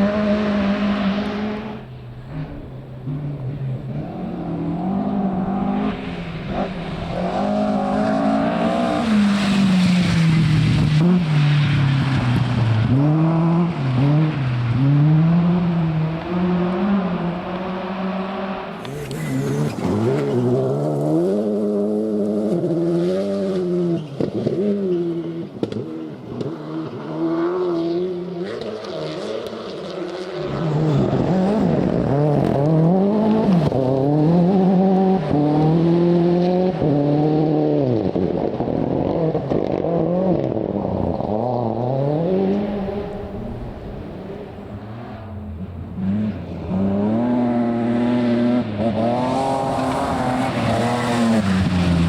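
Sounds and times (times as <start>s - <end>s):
rally car engines revving: 0.0s - 52.0s.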